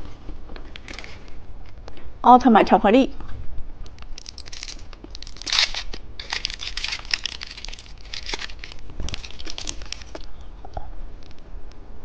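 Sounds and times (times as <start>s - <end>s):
candy wrapper crinkling and tearing: 3.9s - 10.4s.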